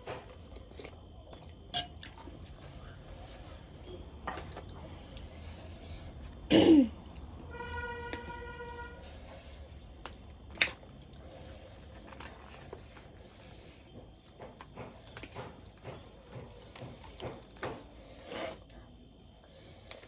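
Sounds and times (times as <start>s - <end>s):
person clearing throat: 6.5s - 7.0s.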